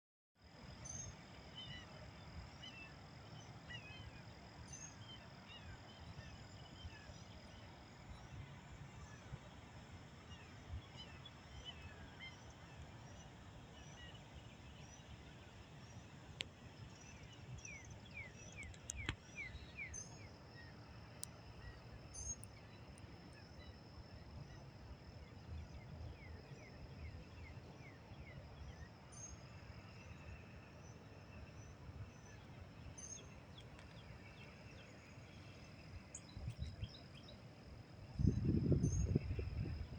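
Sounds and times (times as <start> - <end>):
sharp clicks: 18.6 - 19.2.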